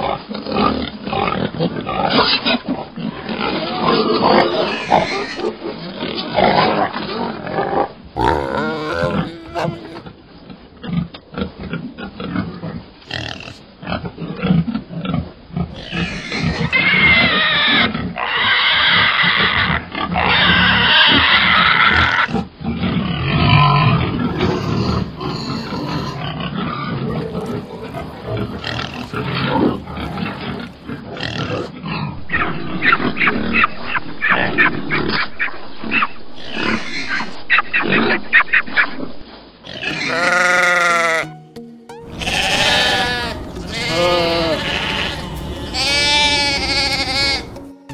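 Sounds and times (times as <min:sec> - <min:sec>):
pigs grunting: 0:00.0 - 0:10.2, 0:13.0 - 0:14.1, 0:15.1 - 0:35.3, 0:39.6 - 0:41.2, 0:42.1 - 0:47.6
pigs squealing: 0:03.2 - 0:06.8, 0:08.2 - 0:10.1, 0:13.1 - 0:13.6, 0:15.7 - 0:22.5, 0:23.3 - 0:38.5, 0:39.7 - 0:41.3, 0:42.1 - 0:47.7.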